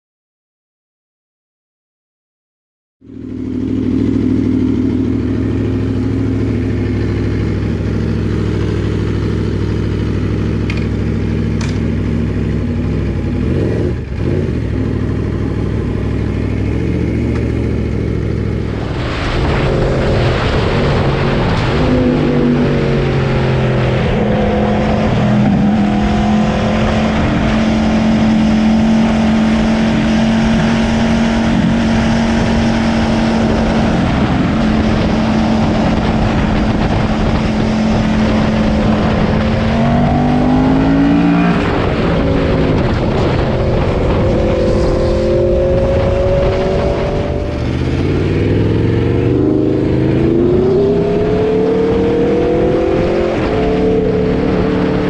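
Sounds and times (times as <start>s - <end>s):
motorcycle engine revving: 3.0s - 55.0s
steady rush of noise: 15.4s - 55.0s.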